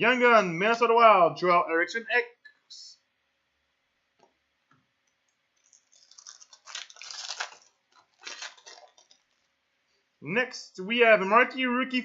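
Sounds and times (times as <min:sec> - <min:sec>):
wrapper tearing and crinkling: 0:05.6 - 0:09.5.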